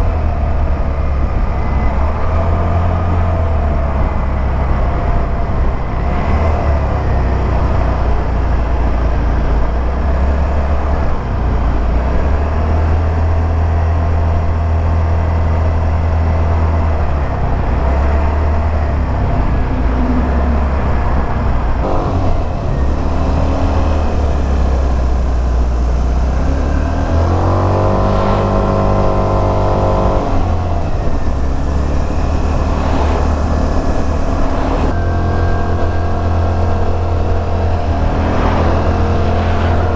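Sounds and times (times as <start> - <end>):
road and wind noise: 0.0 - 39.9
scooter engine rumbling: 13.4 - 39.9
engine note rising in pitch: 16.8 - 39.9.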